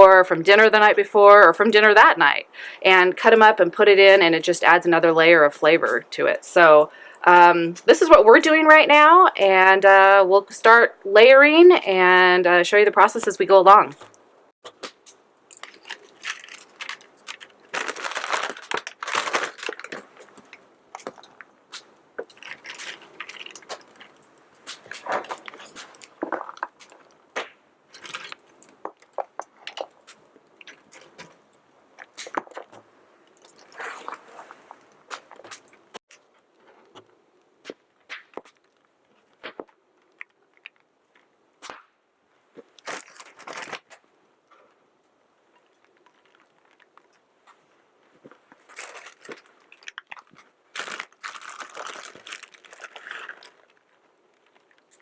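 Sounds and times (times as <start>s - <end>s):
tortilla chips crunching: 14.7s - 31.4s, 42.6s - 44.0s, 48.6s - 55.0s.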